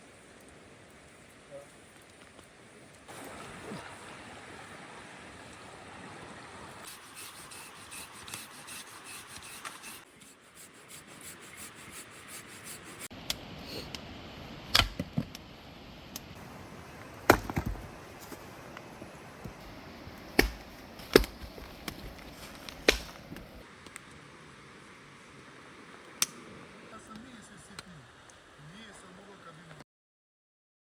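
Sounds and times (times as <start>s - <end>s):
light ticking and rubbing: 6.8s - 13.1s, 17.8s - 23.6s
knife chopping on wood: 19.6s - 23.6s.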